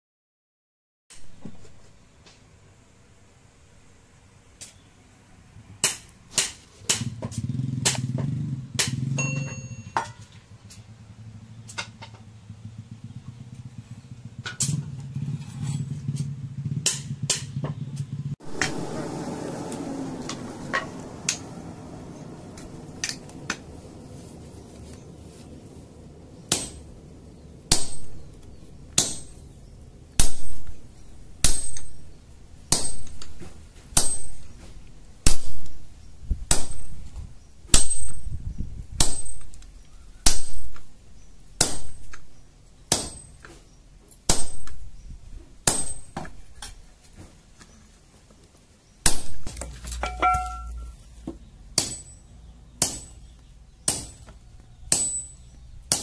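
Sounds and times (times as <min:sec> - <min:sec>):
hammer striking steel on anvil: 0:08.8 - 0:10.3, 0:26.5 - 0:26.9, 0:27.7 - 0:28.3, 0:28.9 - 0:29.4, 0:31.4 - 0:32.0, 0:32.7 - 0:33.3, 0:34.0 - 0:34.5, 0:39.0 - 0:39.6, 0:45.6 - 0:46.3, 0:50.0 - 0:50.9, 0:51.8 - 0:54.3, 0:54.9 - 0:56.0.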